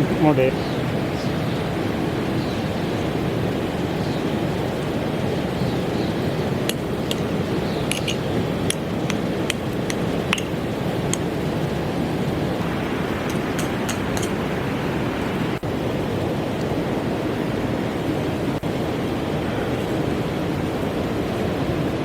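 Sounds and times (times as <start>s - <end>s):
river rushing: 0.0s - 22.0s
sharp light clicks: 7.9s - 11.3s, 13.3s - 14.4s.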